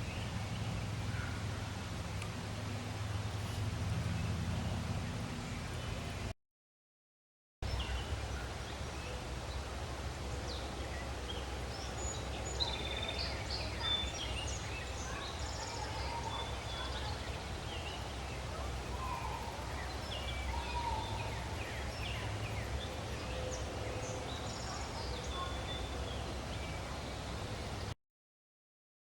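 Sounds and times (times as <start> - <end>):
birds chirping and trilling: 0.0 - 1.8, 7.6 - 27.9
steady low rumble: 0.0 - 6.3
lower longer bird calls: 7.7 - 27.6.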